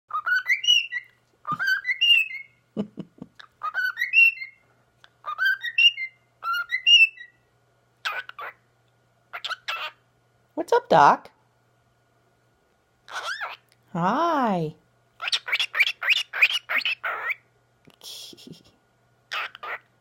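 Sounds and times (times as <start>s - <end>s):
cockatiel harsh chirp: 0.1s - 2.6s, 3.5s - 4.6s, 5.2s - 7.4s, 8.0s - 8.6s, 9.3s - 10.0s, 13.1s - 13.6s, 15.2s - 17.4s, 19.3s - 19.8s
cockatiel whistling a tune: 0.1s - 2.6s, 3.6s - 4.6s, 5.2s - 7.4s.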